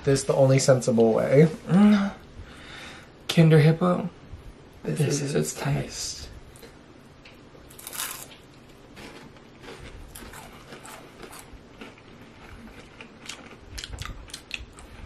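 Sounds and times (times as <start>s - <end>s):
chewing wafer biscuit crunches: 7.7s - 8.4s, 9.0s - 15.0s.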